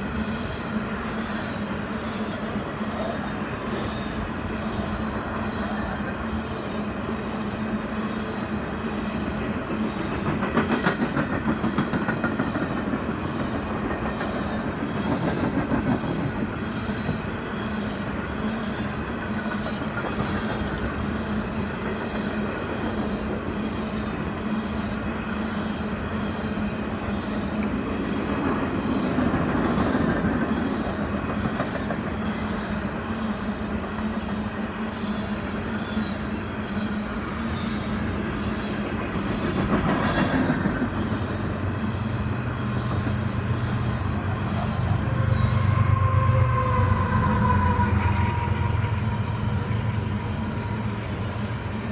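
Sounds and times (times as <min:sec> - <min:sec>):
freight train cars rolling: 0:00.0 - 0:51.9
wheel on rail clatter: 0:37.8 - 0:46.3.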